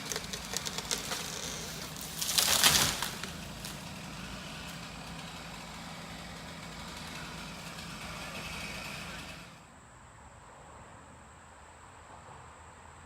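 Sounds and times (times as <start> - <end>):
engine idling: 0.0 - 9.7.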